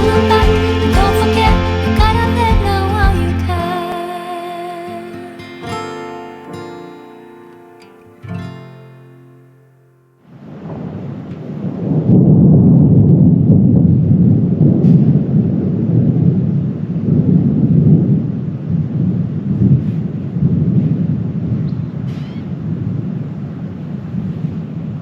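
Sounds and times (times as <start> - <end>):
loud low rumble: 0.0 - 3.7.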